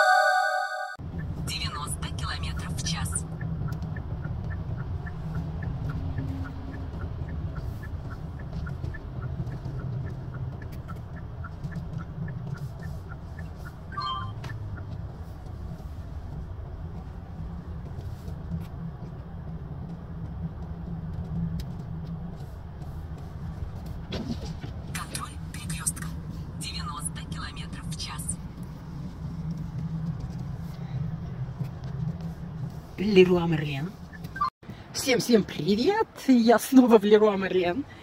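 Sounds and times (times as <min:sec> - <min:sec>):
vehicle engine rumble: 0:01.0 - 0:36.2
faint regular ticking: 0:01.2 - 0:18.5.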